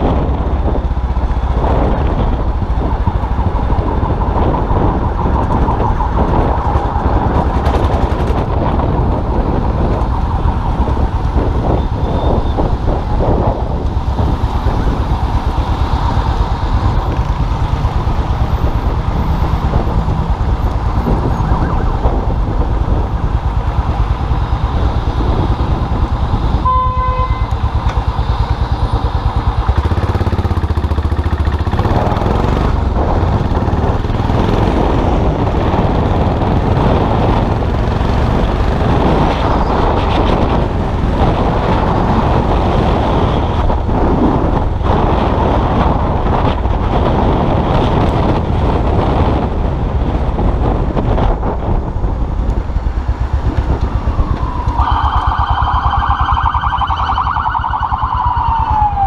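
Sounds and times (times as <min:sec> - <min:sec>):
motorcycle engine running: 0:00.0 - 0:56.8
road and wind noise: 0:00.0 - 0:59.0
short horn beep: 0:26.6 - 0:27.6.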